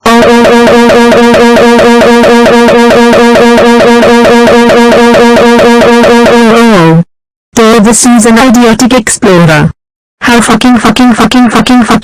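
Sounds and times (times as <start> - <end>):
distorted warbling electronic drone: 0.0 - 7.0.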